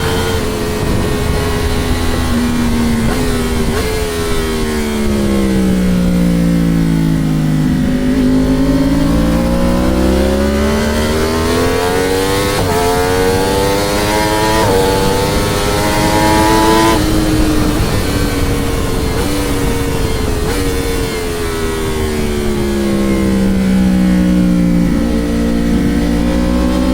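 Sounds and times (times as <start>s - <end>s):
gear changes: 0.0s - 26.9s
motorcycle engine at speed: 0.0s - 26.9s
wind rush: 0.0s - 26.9s.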